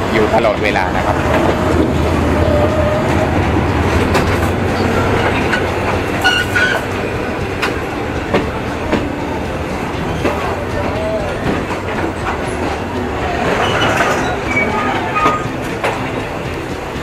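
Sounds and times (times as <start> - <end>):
train rumble: 0.0 - 17.0
wheels clacking over rail joints: 0.0 - 17.0
high wheel squeal: 4.4 - 7.0, 12.5 - 15.7.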